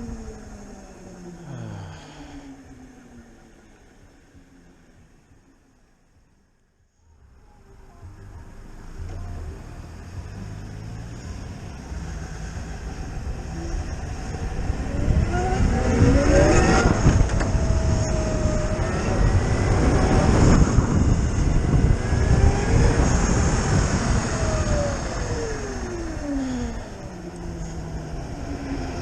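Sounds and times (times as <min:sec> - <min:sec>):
wind rushing on microphone: 0:12.6 - 0:29.0.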